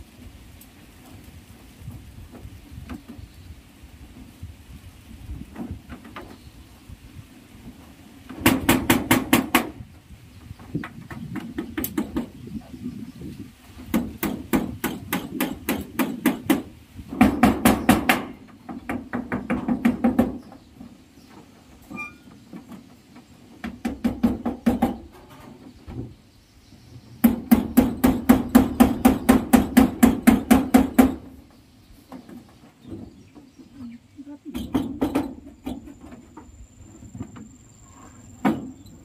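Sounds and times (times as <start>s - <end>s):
hammer driving nails: 8.3s - 9.8s, 13.9s - 20.4s.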